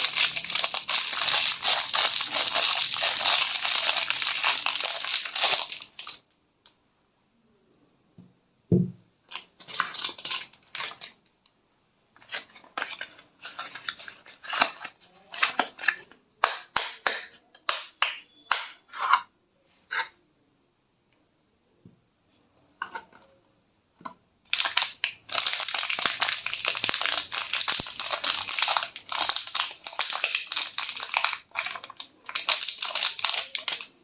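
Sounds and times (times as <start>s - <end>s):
crumbly scratching of soap: 12.2s - 16.1s.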